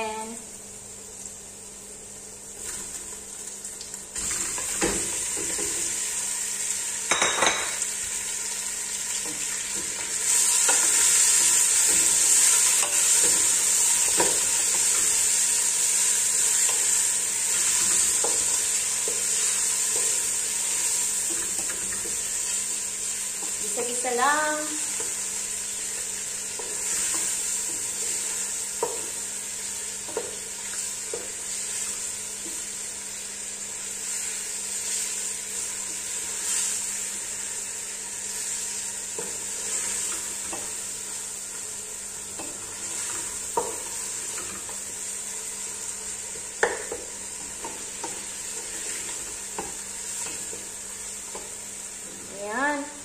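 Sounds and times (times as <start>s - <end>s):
chicken sizzling in oil: 0.1s - 53.0s
spoon knocking against pot: 7.1s - 7.8s.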